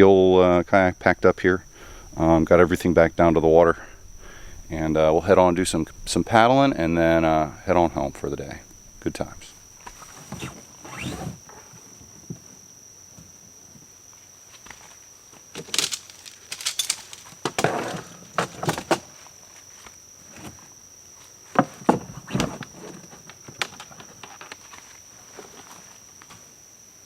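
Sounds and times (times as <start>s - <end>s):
knocks and thuds of gear: 15.5s - 19.1s.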